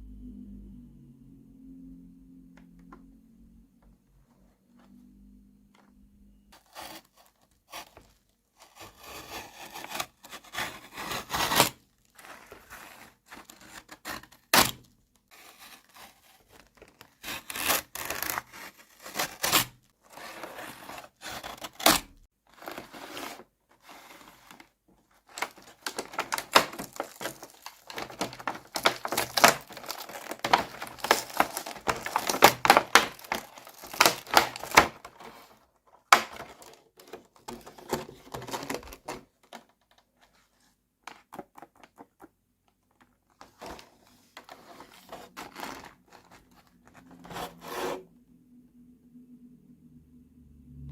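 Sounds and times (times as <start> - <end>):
packaging rustling and tearing: 6.6 - 40.3, 43.4 - 47.7.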